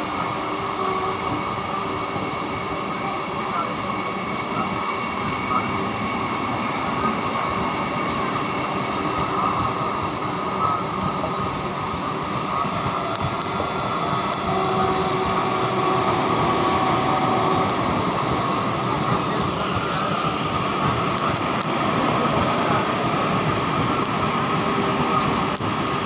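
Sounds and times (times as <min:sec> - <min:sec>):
wheels rumbling on rail: 0:00.0 - 0:26.0.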